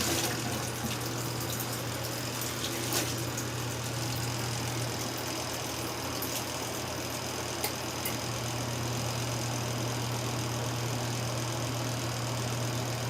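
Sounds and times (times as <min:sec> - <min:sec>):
agitator churning water: 0:00.0 - 0:09.3
washing machine motor humming: 0:00.0 - 0:13.0.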